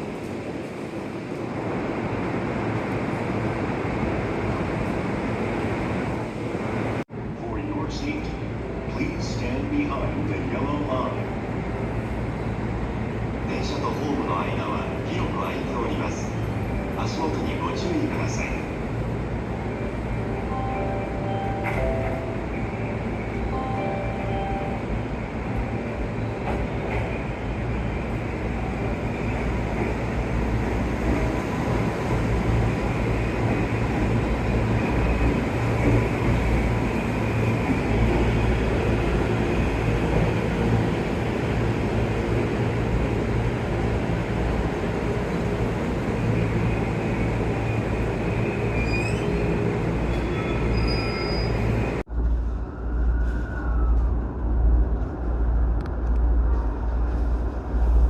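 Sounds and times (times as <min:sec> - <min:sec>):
electric train rumbling: 0:00.0 - 0:58.0
high squeals: 0:46.8 - 0:51.9.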